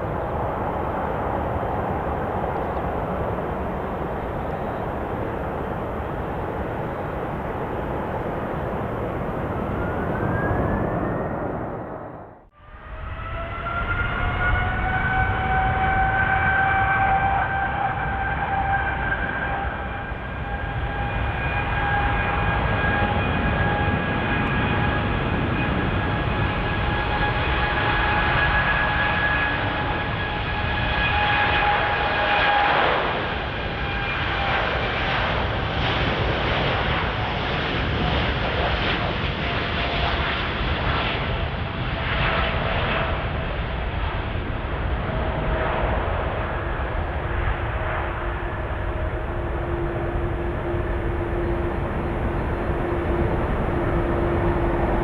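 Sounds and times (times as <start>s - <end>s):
jet engines roaring: 0.0s - 55.0s
high whining engine tones: 45.0s - 55.0s.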